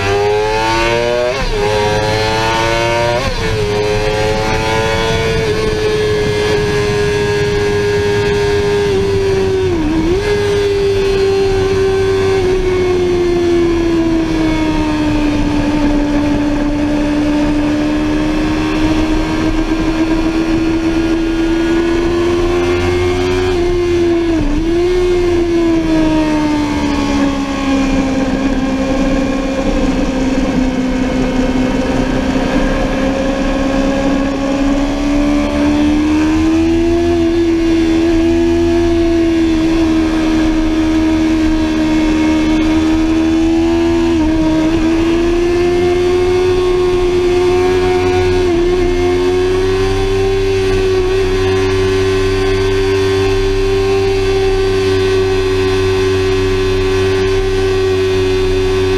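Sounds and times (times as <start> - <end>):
low wind rush: 0.0 - 58.9
motorcycle engine at high revs: 0.0 - 58.9.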